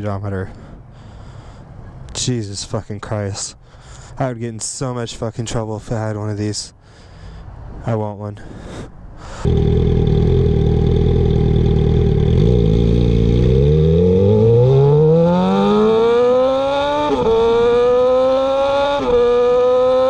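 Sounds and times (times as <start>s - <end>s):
motorcycle engine accelerating hard: 9.5s - 20.0s.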